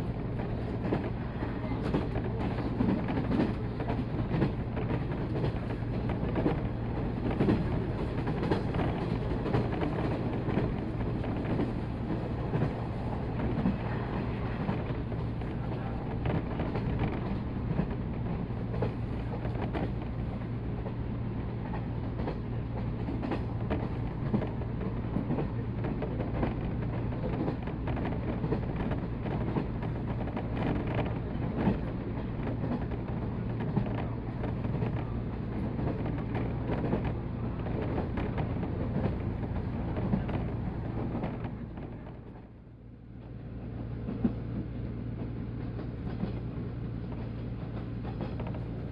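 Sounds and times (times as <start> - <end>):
train rumble and hum: 0.0 - 48.9.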